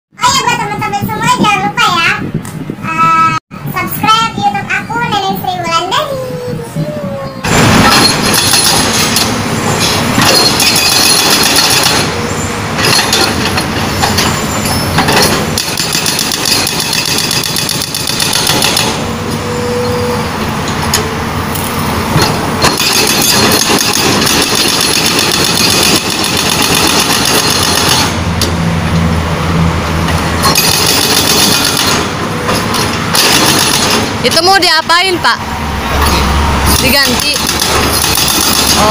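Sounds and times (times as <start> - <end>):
diesel engine running: 7.4 - 38.9
hydraulic breaker hammering asphalt: 7.6 - 12.2, 15.0 - 19.1, 22.1 - 28.2, 30.4 - 34.5, 36.7 - 38.9.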